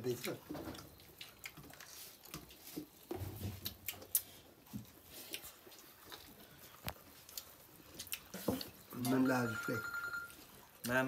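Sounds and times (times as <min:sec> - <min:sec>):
chewing and biting chicken: 0:00.2 - 0:09.1.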